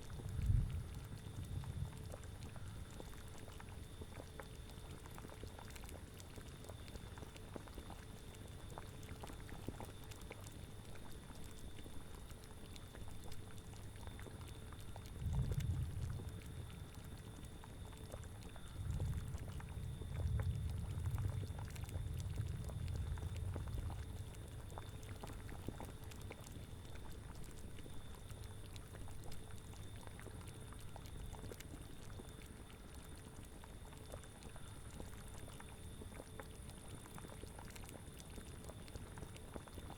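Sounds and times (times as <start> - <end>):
cauldron bubbling: 14.0 - 39.9.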